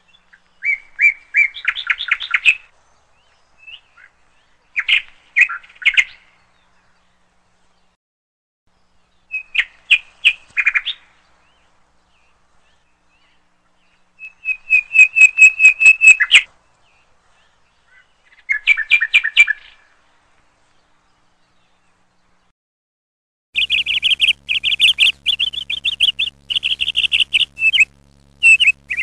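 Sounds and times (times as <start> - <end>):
bird chirping: 23.6 - 29.0.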